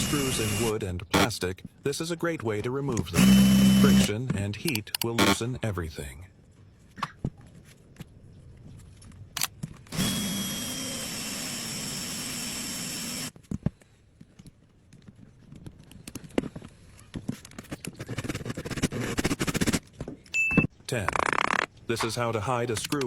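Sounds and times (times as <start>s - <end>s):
electric drill running: 0.0s - 0.8s, 3.2s - 4.1s, 9.9s - 13.4s.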